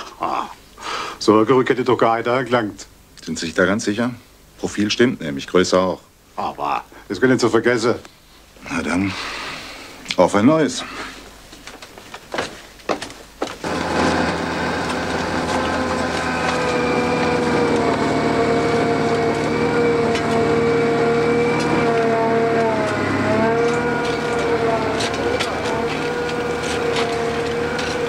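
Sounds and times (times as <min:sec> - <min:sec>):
machine whine and hum: 0:13.5 - 0:28.0.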